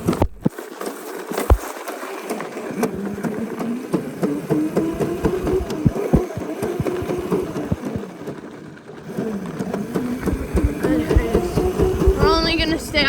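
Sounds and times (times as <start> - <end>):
dirt bike engine running: 2.7 - 13.0.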